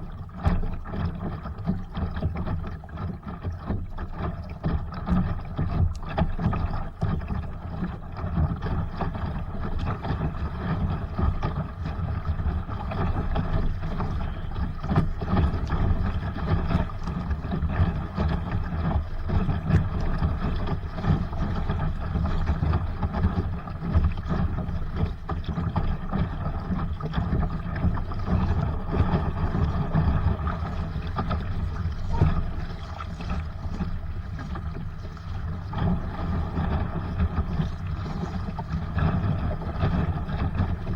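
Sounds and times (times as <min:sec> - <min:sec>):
water rushing along a hull: 0:00.0 - 0:40.9
small splashes: 0:26.8 - 0:36.6.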